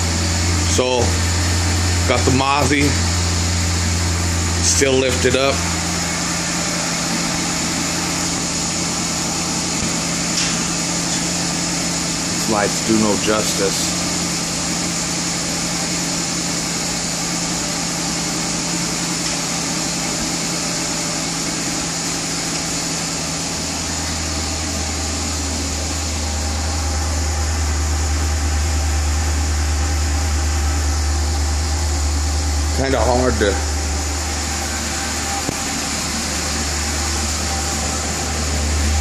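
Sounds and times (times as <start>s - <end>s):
car engine idling: 0.0s - 39.0s
deep low rumble: 26.4s - 39.0s.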